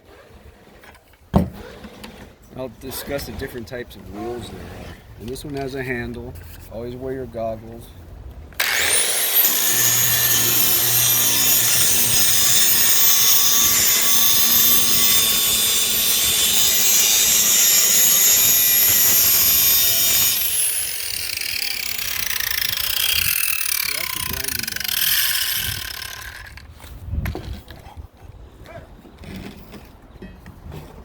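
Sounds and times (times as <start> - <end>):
angle grinder whining: 8.6 - 26.7.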